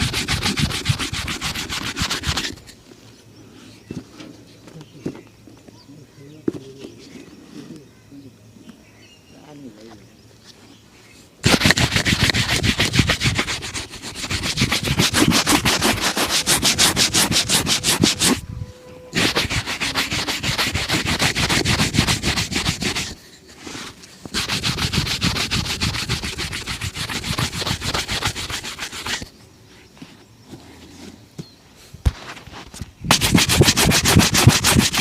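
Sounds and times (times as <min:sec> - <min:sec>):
shoe brush buffing a shoe: 0:00.0 - 0:02.7, 0:11.4 - 0:18.4, 0:19.2 - 0:29.3, 0:33.1 - 0:35.0.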